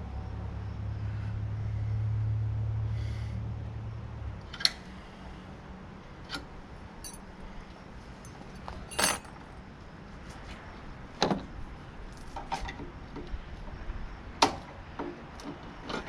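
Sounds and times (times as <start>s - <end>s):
metal parts and tools clinking: 8.2s - 9.4s.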